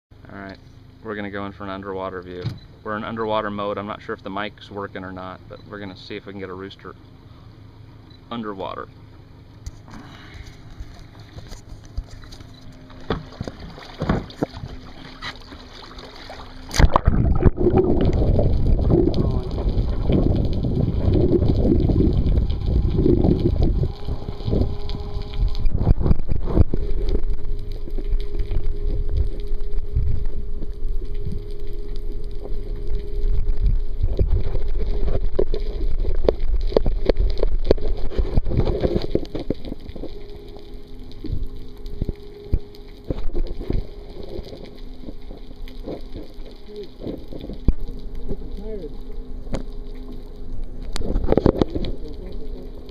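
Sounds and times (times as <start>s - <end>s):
engine-like hum: 0.1s - 52.9s
water splash: 11.1s - 48.4s
rushing gurgling water: 12.8s - 52.9s.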